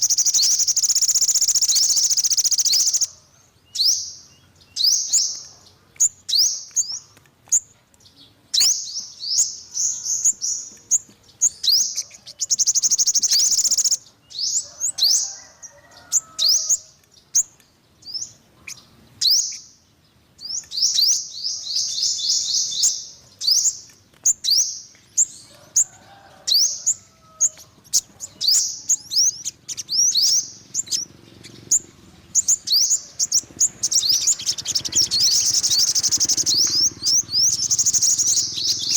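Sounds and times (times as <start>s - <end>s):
bird singing high trills: 0.0s - 5.4s, 11.4s - 15.2s, 26.5s - 38.9s.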